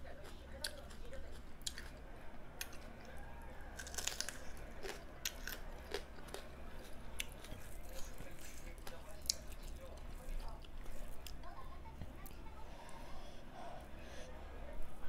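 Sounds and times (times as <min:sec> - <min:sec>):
person chewing food: 0:00.0 - 0:02.0, 0:02.6 - 0:11.5.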